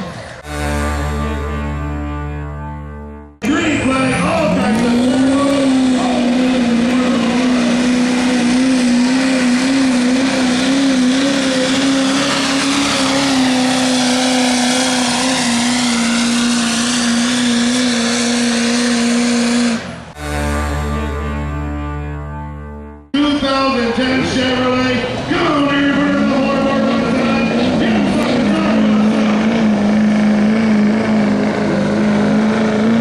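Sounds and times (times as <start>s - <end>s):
diesel engine at full throttle: 0.0s - 33.0s
music: 0.5s - 4.5s, 20.3s - 24.5s.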